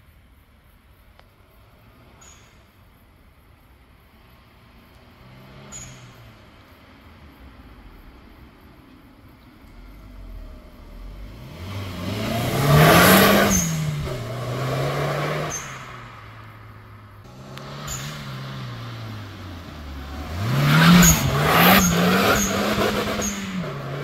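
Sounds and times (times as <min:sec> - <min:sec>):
car accelerating hard past: 0:09.7 - 0:24.0.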